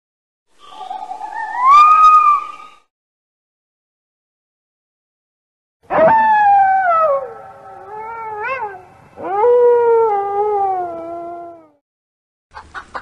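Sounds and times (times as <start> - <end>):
animal howling: 0.6 - 2.8, 5.9 - 11.8.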